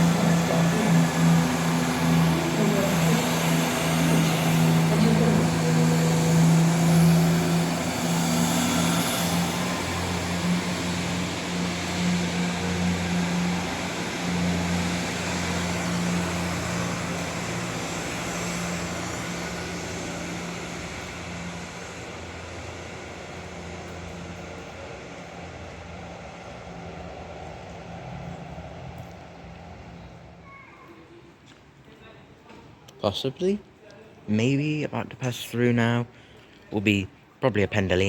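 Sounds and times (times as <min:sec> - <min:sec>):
diesel train engine hum: 0:00.0 - 0:30.4.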